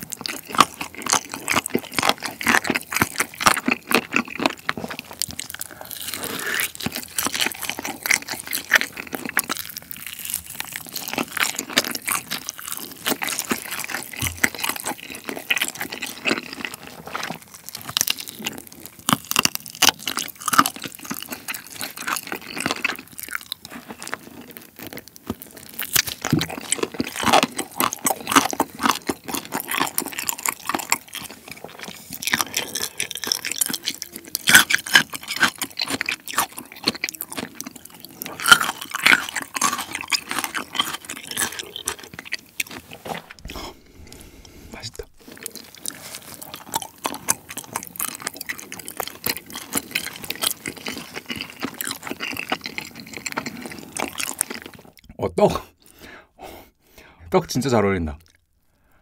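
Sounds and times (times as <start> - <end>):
chewing and crunching: 0.0 - 56.1, 58.2 - 59.0.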